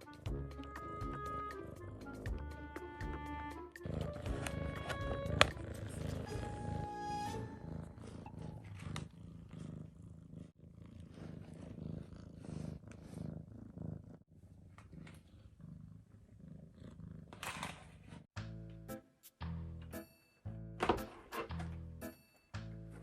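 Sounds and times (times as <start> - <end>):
cat purring: 0.0 - 18.3.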